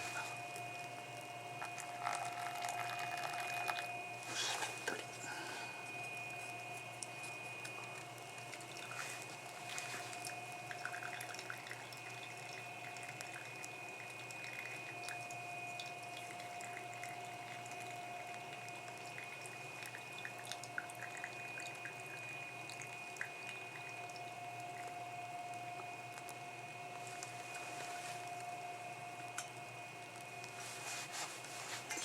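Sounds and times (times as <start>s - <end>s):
water drips and bubbles: 0.3s - 4.0s, 6.1s - 27.5s.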